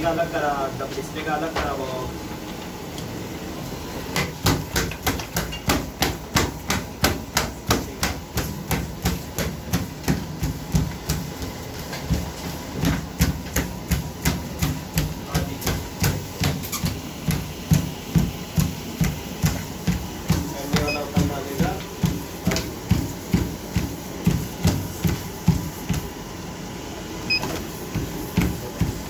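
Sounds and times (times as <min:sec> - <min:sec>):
treadmill hum: 0:00.0 - 0:29.0
feet thudding on treadmill belt: 0:03.8 - 0:26.4, 0:27.2 - 0:29.0.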